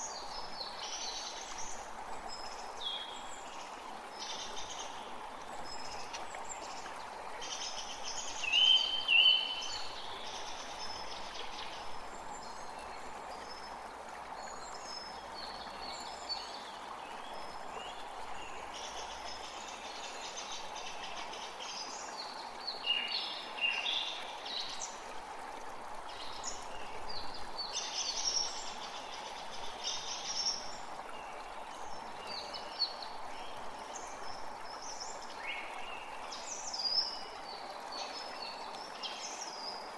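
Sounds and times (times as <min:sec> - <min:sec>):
songbirds singing and calling: 0:00.0 - 0:13.8, 0:14.4 - 0:25.0, 0:26.0 - 0:39.9
forest creek running: 0:00.0 - 0:39.9.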